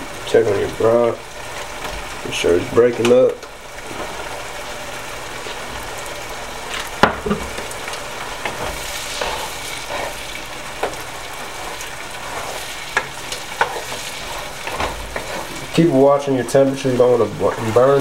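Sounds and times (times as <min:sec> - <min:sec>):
onions sizzling in a frying pan: 0:00.0 - 0:18.0
wooden spoon knocking on pan: 0:07.0 - 0:07.6.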